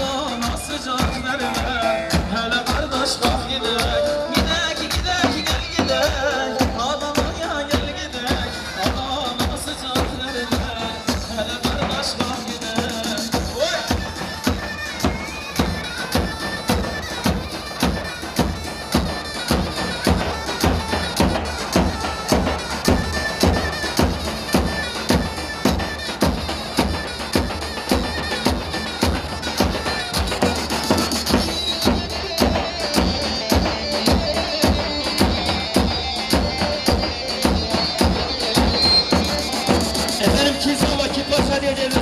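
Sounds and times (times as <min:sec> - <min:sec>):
reedy wind instrument melody: 0:00.0 - 0:42.0
steady drum beat: 0:00.0 - 0:42.0.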